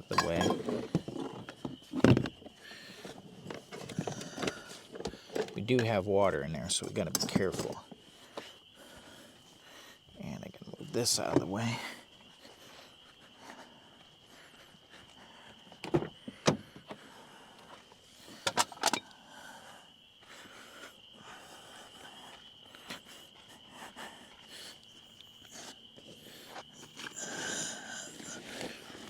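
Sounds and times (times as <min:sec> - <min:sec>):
camping gear knocks and clicks: 0:00.0 - 0:06.0, 0:06.8 - 0:08.5, 0:15.8 - 0:17.0, 0:17.7 - 0:19.1.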